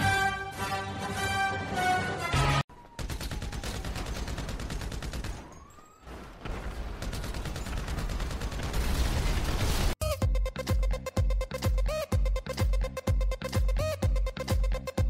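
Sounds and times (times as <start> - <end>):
rapid automatic gunfire: 3.0 - 5.7, 6.5 - 10.0.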